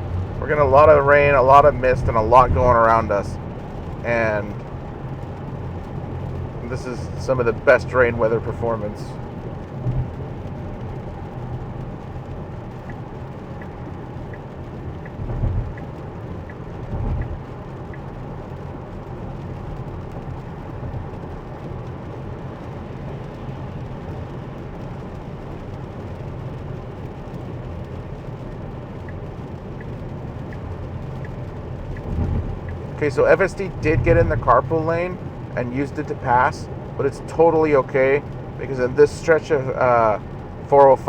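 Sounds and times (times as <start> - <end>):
road and rain noise in car: 0.0 - 41.0
turn signal ticking: 0.0 - 41.0
low thumps: 9.8 - 10.4, 12.9 - 18.0, 30.5 - 34.9.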